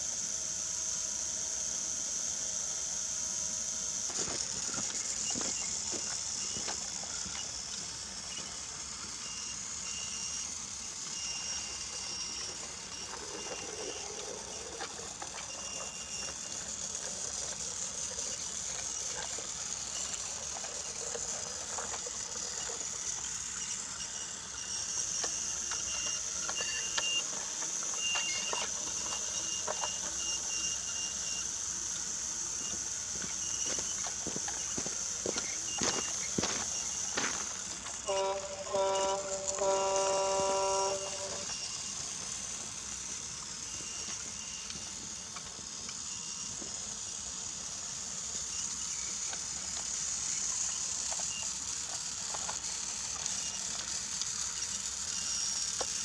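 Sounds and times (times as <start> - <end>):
toy train motor whine: 0.0 - 56.0
thin high tone: 4.2 - 46.7.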